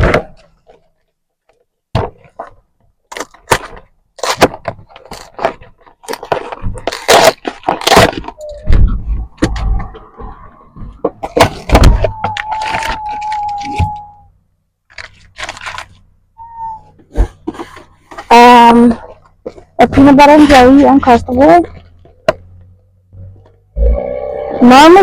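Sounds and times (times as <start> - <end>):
packaging clicks and crinkles: 2.4 - 8.7, 11.5 - 14.1, 14.8 - 16.1
steady high tone: 23.8 - 25.0.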